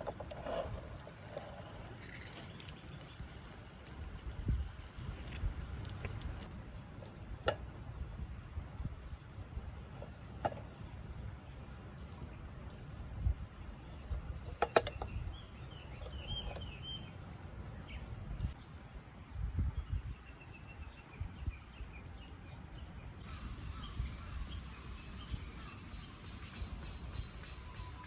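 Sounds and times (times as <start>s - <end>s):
high chirping calls: 13.7s - 18.6s, 23.3s - 28.0s.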